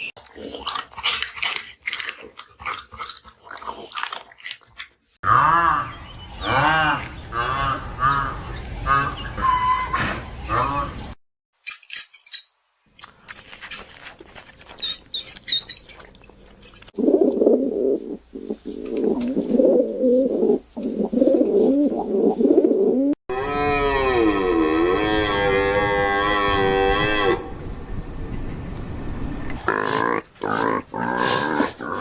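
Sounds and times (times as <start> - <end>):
cow mooing: 23.3 - 27.5.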